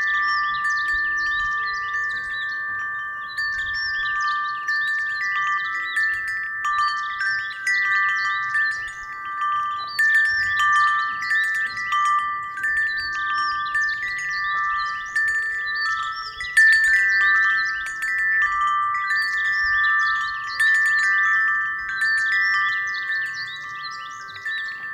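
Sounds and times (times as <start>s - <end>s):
low rumble of wind: 0.0s - 24.9s
wind chime ringing: 0.0s - 24.9s.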